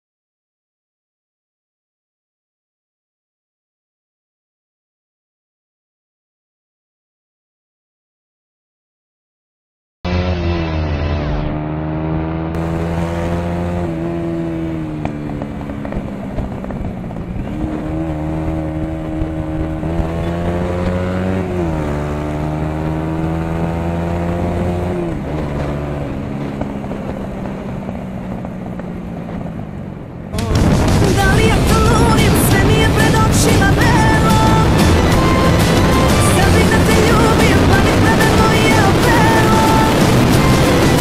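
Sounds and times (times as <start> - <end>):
motorcycle engine running: 10.1 - 41.0.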